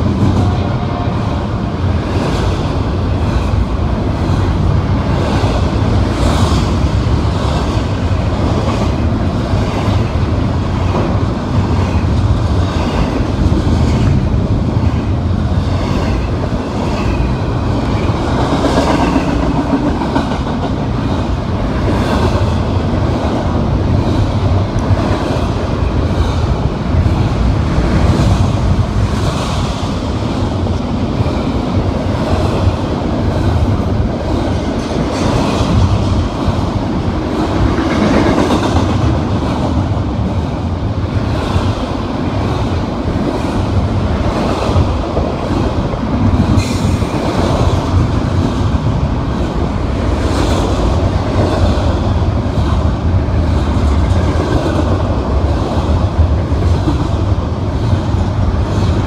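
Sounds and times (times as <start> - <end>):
train rumble: 0.0 - 59.0
train wheels clicking over rail joints: 2.0 - 30.5.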